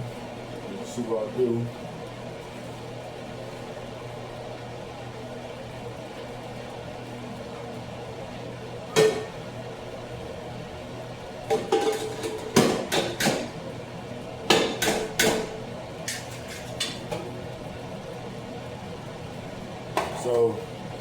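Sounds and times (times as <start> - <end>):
cookware and utensils clattering: 8.9 - 9.4, 11.5 - 13.6, 14.5 - 17.3.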